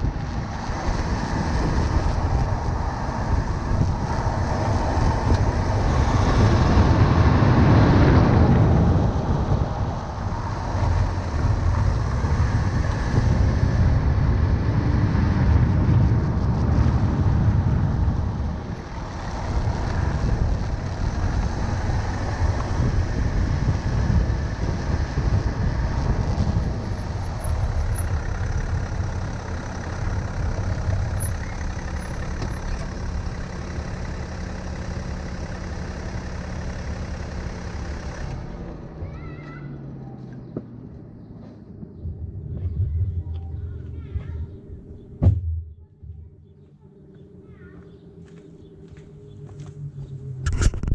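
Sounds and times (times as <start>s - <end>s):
tyre and road rumble: 0.0s - 50.9s
steady low hum: 41.7s - 50.9s.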